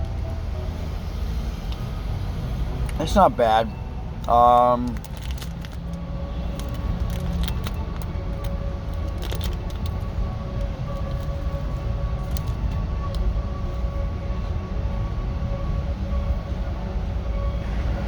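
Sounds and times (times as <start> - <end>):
low rumble with hum: 3.7 - 18.0
biscuit crunching being chewed: 4.2 - 10.1.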